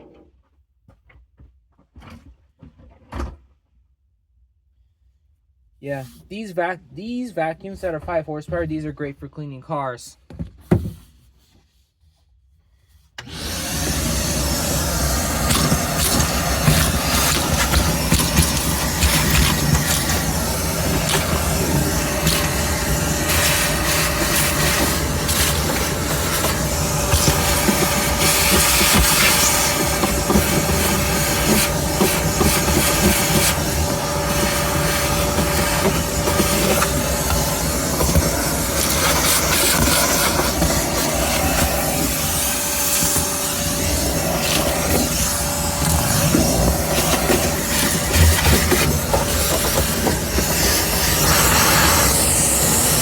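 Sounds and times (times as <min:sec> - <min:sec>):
vacuum motor running: 0:13.2 - 0:53.0.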